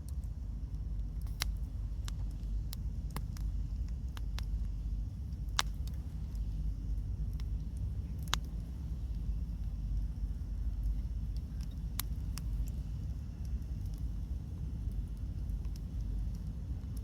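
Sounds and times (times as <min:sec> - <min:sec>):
steady low rumble: 0:00.0 - 0:17.0
wood bonfire crackling: 0:00.0 - 0:17.0
sharp fire pops: 0:01.1 - 0:08.6.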